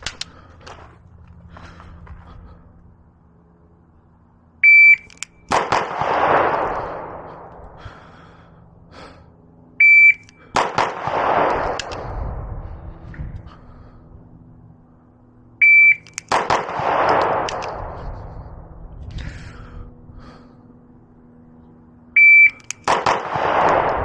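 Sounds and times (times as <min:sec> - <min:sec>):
shot timer beeps: 0:04.6 - 0:05.3, 0:09.8 - 0:10.4, 0:15.6 - 0:16.3, 0:22.2 - 0:22.8
pistol shot with echo: 0:05.4 - 0:07.3, 0:10.5 - 0:12.0, 0:16.2 - 0:17.9, 0:22.8 - 0:24.0.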